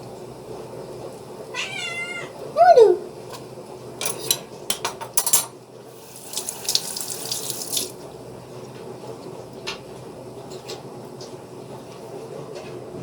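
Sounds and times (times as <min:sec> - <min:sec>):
tap water running: 0:05.9 - 0:08.1.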